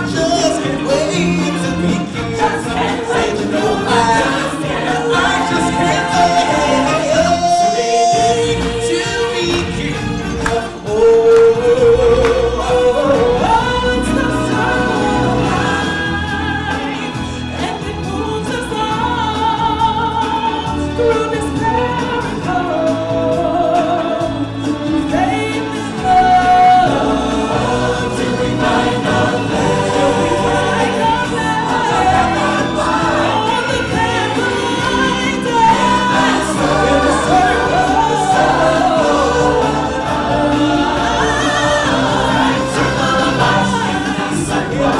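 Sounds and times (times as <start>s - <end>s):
choir singing: 0.0s - 44.9s
musical accompaniment: 0.0s - 44.9s.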